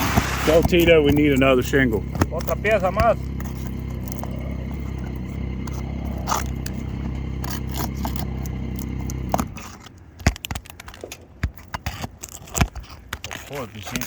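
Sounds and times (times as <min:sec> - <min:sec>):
low motor hum: 0:00.0 - 0:10.6
shingles and tools scraping: 0:00.0 - 0:14.0.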